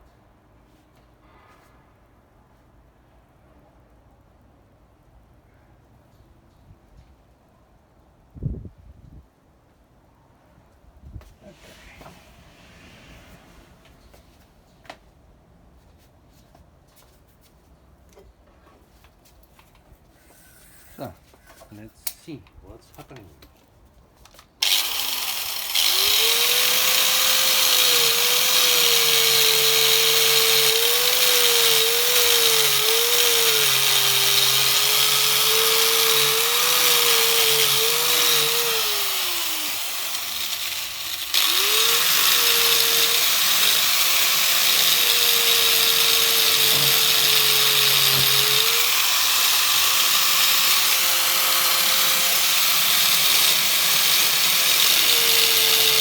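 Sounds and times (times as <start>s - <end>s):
angle grinder motor whine: 24.6s - 56.0s.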